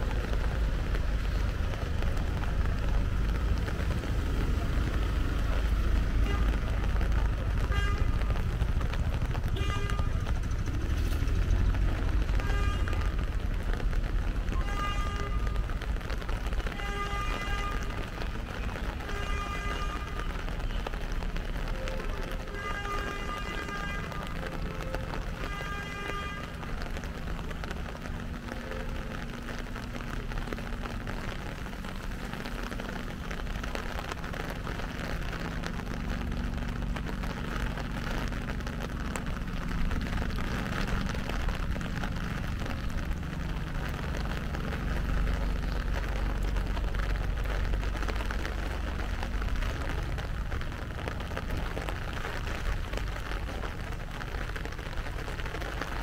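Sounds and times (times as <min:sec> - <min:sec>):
light rain falling: 0:00.0 - 0:56.0
low rumble of road traffic: 0:00.0 - 0:56.0.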